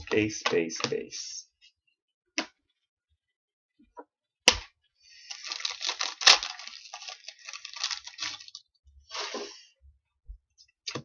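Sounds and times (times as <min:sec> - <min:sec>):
foil wrapper crinkling and tearing: 0:05.2 - 0:08.7.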